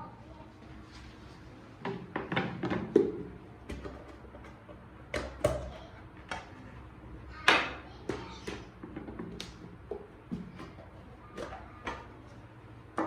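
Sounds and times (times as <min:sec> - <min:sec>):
kitchen items knocking and clicking: 0:01.8 - 0:06.5, 0:07.5 - 0:12.2.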